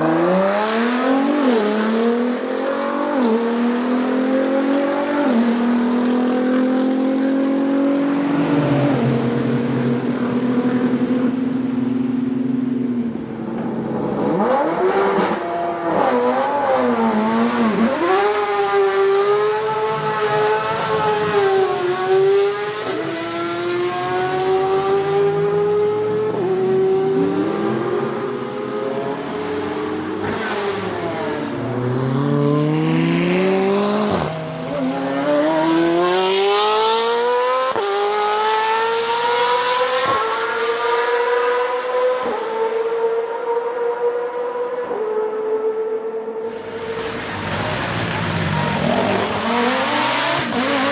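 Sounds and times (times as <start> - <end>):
car engine revving hard: 14.0 - 42.7, 46.5 - 50.9.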